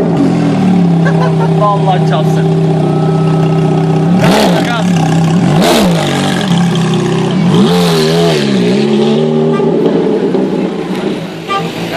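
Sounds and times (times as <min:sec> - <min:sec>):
sports car engine revving: 0:00.0 - 0:11.9.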